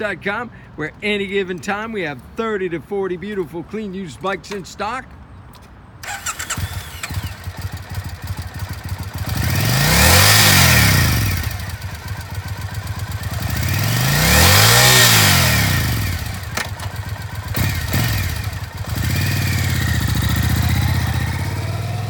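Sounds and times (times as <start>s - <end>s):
motorcycle engine idling and revving: 6.0s - 22.0s.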